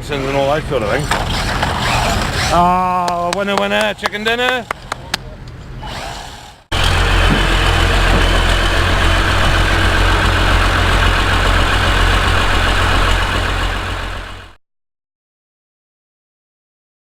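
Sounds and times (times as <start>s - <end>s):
tractor engine rumbling: 6.7s - 14.6s.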